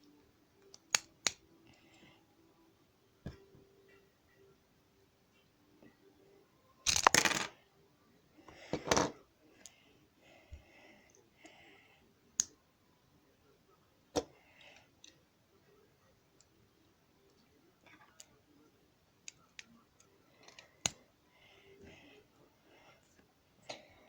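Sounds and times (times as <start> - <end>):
plastic pieces clattering: 6.9 - 7.5.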